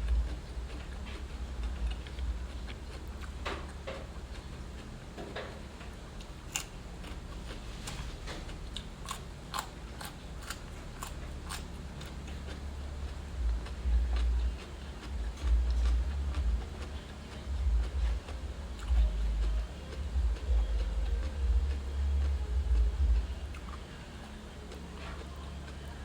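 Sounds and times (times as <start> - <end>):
biting and chewing crunches: 0.0 - 26.0
steady low hum: 0.0 - 26.0.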